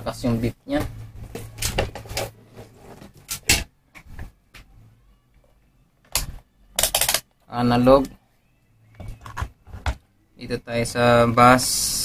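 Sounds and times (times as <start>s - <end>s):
test probes clicking and knocking: 6.1s - 7.2s.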